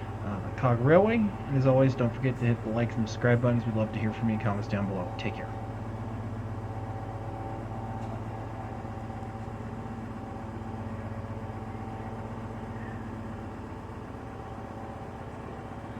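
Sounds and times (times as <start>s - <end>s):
engine idling hum: 0.0s - 15.9s.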